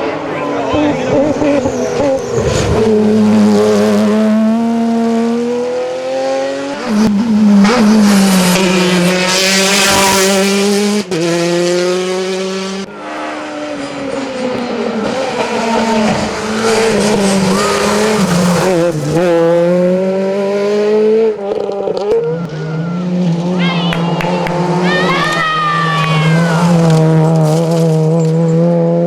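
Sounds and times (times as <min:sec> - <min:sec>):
rally car engines at full throttle: 0:00.0 - 0:29.0
tyres squealing: 0:16.4 - 0:19.2.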